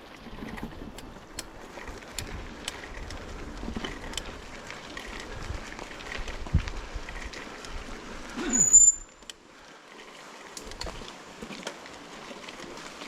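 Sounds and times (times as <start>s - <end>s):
bicycle riding over rough ground: 0.0s - 13.0s
high brake squeal: 8.4s - 9.2s.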